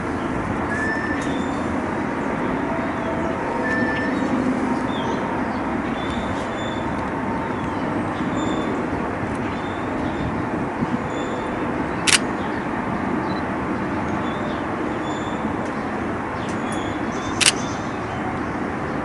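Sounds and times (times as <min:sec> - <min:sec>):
traffic rumble: 0:00.0 - 0:19.0
camera shutter release: 0:17.4 - 0:17.6.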